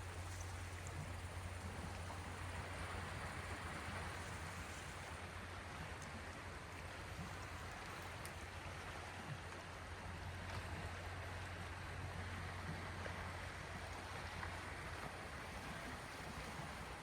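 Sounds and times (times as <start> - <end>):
low steady hum: 0.0 - 17.0
small waves washing on shore: 0.0 - 17.0.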